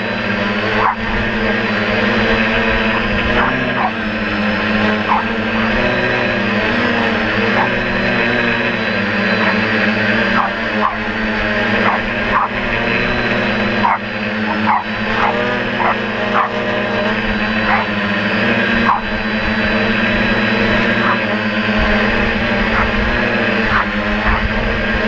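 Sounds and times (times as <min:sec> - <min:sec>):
drone propellers humming: 0:00.0 - 0:25.0
small dog yapping: 0:03.4 - 0:04.0, 0:05.0 - 0:05.7, 0:10.3 - 0:11.1, 0:13.8 - 0:16.6, 0:17.6 - 0:18.0, 0:18.8 - 0:19.1.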